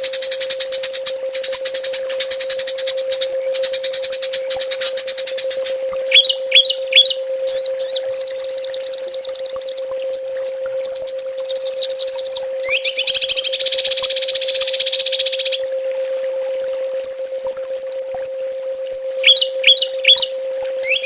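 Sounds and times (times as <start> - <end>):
songbirds trilling and chirping: 0.0 - 15.6, 17.0 - 21.0
steady low hum: 0.0 - 21.0.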